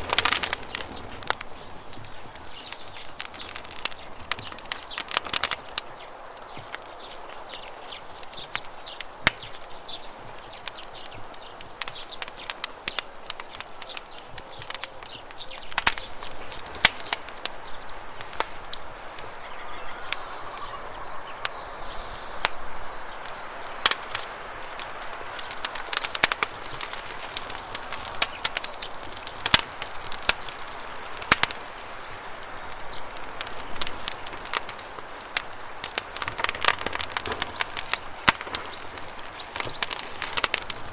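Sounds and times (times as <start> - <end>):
campfire crackling: 0.0 - 40.9
bird trilling: 17.7 - 23.5.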